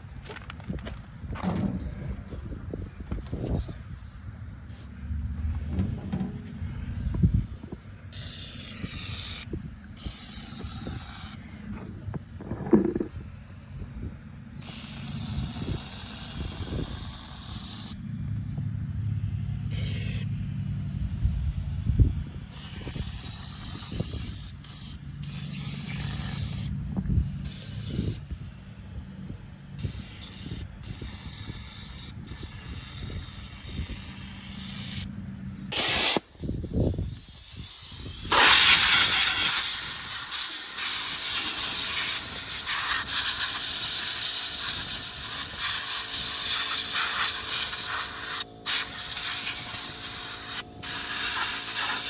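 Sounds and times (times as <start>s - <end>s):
aerosol can spraying: 8.1s - 11.7s, 14.6s - 18.0s, 19.7s - 20.2s, 22.6s - 26.7s, 27.4s - 28.2s, 29.8s - 35.1s, 35.7s - 52.0s.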